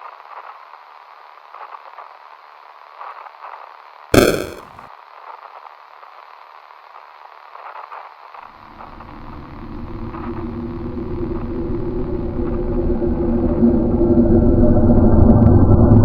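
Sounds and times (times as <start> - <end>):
radio static hiss: 4.2 - 4.8.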